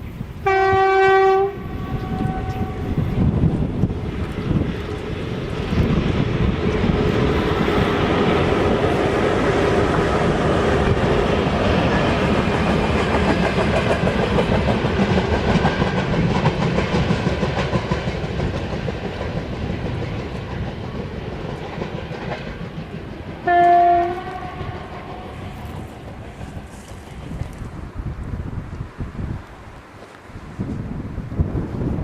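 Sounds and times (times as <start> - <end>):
locomotive horn blast: 0.4 - 3.0, 23.4 - 25.6
freight train wheels clattering: 1.4 - 27.7.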